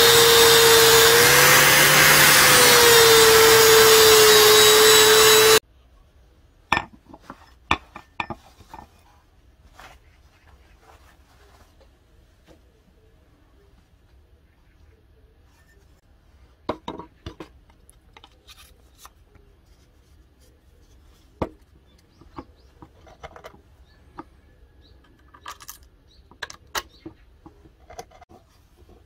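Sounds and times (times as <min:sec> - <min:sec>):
metal and wood clinks and knocks: 0:06.8 - 0:09.1.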